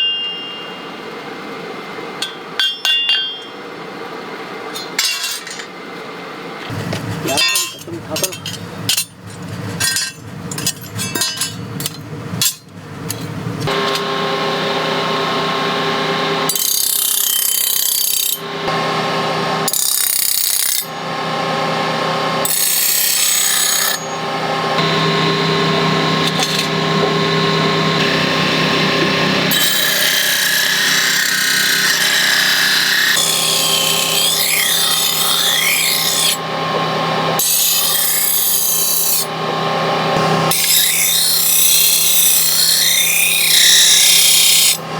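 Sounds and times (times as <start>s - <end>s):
power grinder running: 13.6s - 44.9s.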